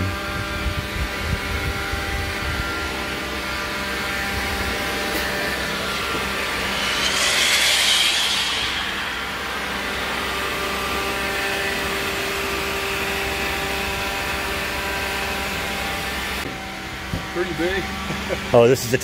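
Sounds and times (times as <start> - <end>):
mechanical drone: 1.5 - 13.3
rush of air: 5.6 - 11.2.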